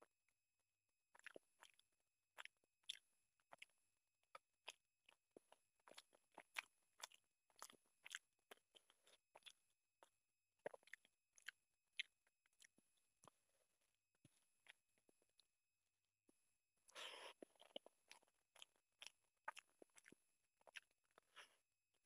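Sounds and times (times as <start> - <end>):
chewing with wet sticky clicks: 1.1 - 13.4, 16.9 - 21.5.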